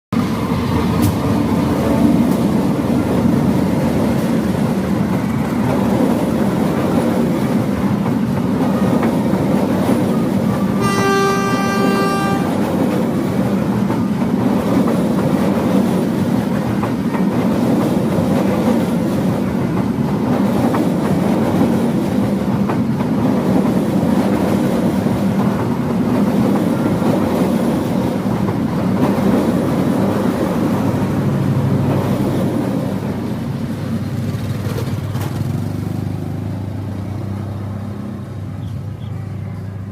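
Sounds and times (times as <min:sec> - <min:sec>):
train wheels rumbling on rails: 0:00.2 - 0:39.9
locomotive horn: 0:10.7 - 0:12.7.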